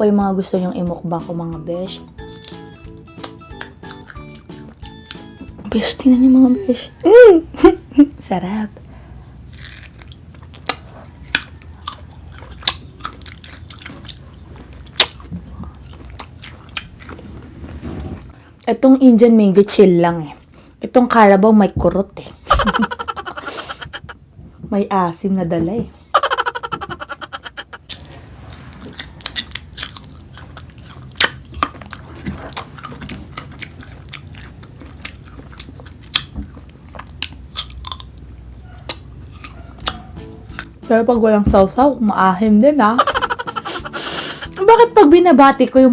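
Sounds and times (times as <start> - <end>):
person chewing crisp mango: 2.1 - 5.6, 8.7 - 18.7, 20.3 - 20.9, 26.6 - 40.8.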